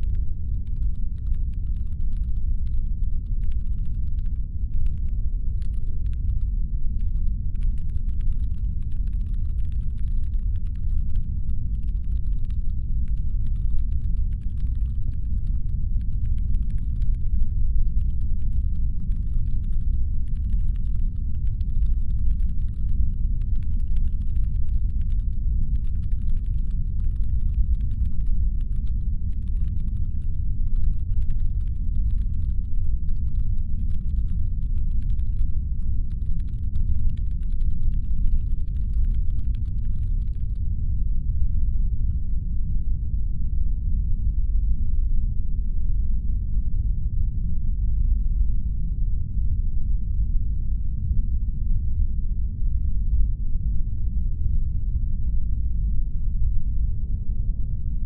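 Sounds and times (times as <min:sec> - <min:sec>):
faint rapid irregular clicking: 0:00.0 - 0:40.6
deep brown-noise rumble: 0:00.0 - 0:58.0.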